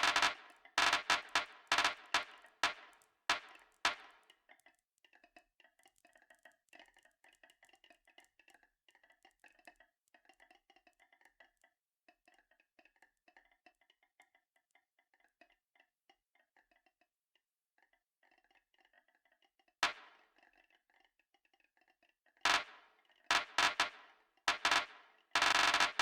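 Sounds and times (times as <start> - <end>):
marbles clicking on a track: 0.0 - 4.7, 22.5 - 26.0.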